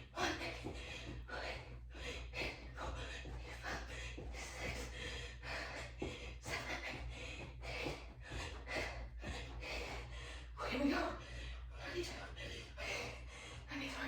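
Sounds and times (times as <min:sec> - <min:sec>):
low steady hum: 0:00.0 - 0:14.0
woman breathing hard: 0:00.0 - 0:14.0.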